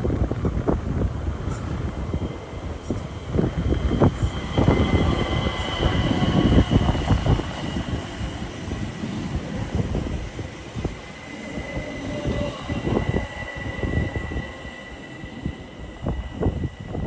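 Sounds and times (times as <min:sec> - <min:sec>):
high-pitched whine: 0:00.0 - 0:17.0
train wheels clattering: 0:00.6 - 0:09.2.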